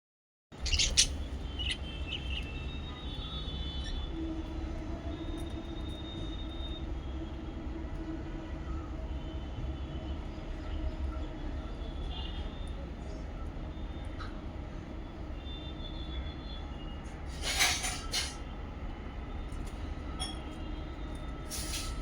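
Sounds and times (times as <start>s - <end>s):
lovebirds chirping: 0.6s - 4.1s.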